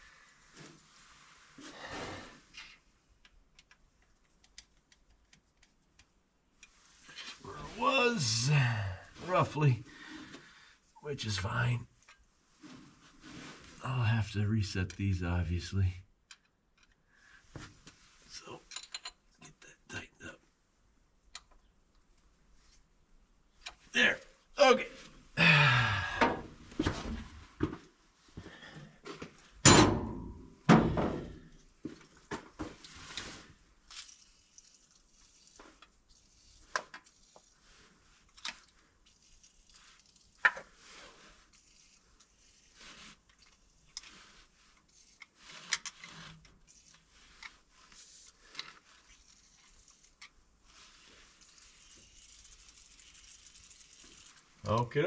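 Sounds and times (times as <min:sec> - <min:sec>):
light metal clinks and knocks: 0:18.6 - 0:19.3.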